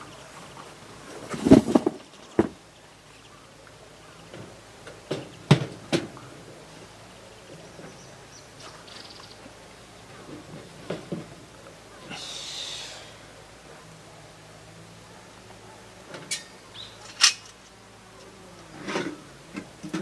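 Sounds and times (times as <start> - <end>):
sharp knocks and clatters: 1.3 - 2.6.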